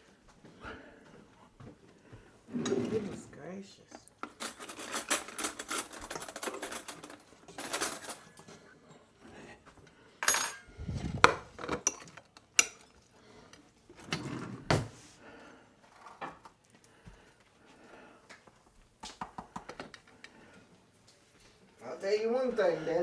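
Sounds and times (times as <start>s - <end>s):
cutlery clinking and scraping plates: 2.5s - 3.3s, 4.1s - 9.4s, 10.2s - 14.9s.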